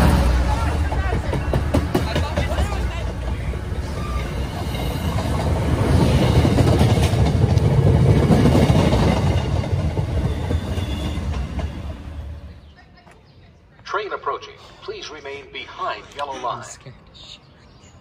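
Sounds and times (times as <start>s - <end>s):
train passing on tracks: 0.0s - 13.1s.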